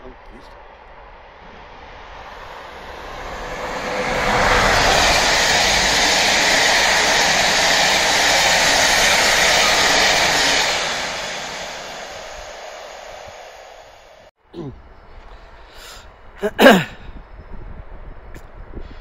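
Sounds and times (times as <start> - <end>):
train coaches passing: 0.4 - 14.3.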